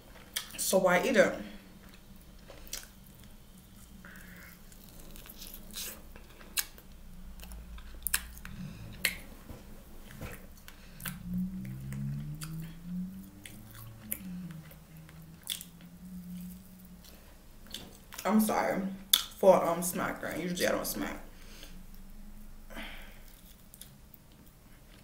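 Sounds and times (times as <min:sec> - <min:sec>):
person chewing with mouth open: 0:00.0 - 0:00.6, 0:01.6 - 0:18.2, 0:19.0 - 0:19.4, 0:21.6 - 0:25.0
wet lip smacking clicks: 0:07.4 - 0:09.2.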